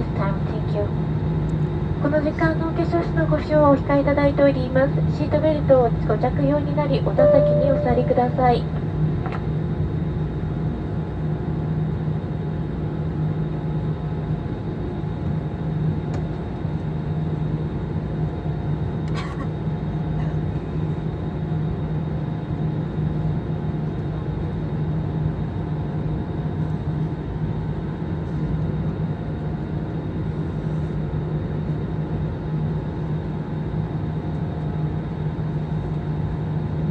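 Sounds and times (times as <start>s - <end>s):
jet engine cabin hum: 0.2s - 8.8s.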